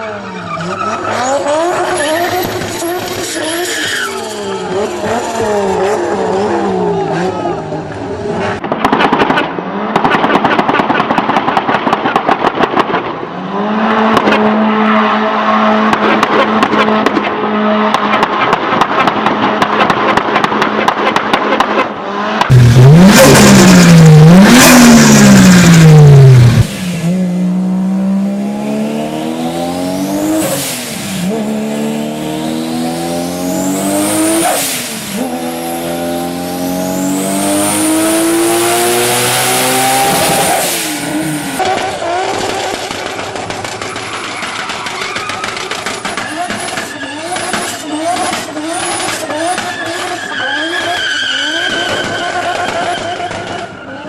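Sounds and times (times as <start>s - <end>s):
car engine revving: 21.5s - 43.9s
car accelerating through gears: 22.1s - 42.2s.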